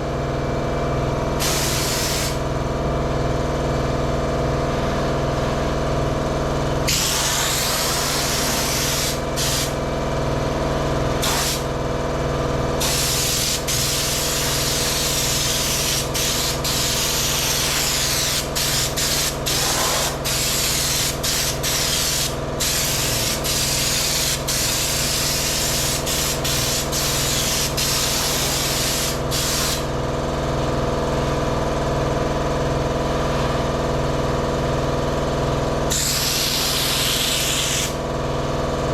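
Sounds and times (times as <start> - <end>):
steady machine hum: 0.0 - 38.9
spray gun hissing: 1.4 - 2.4, 6.9 - 9.8, 11.2 - 11.6, 12.8 - 29.9, 35.9 - 38.0.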